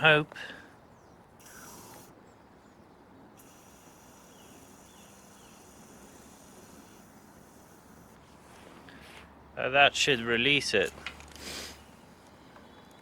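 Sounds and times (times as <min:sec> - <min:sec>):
distant bird chirps: 0:00.0 - 0:08.2, 0:11.7 - 0:13.0
outdoor background noise: 0:00.0 - 0:13.0.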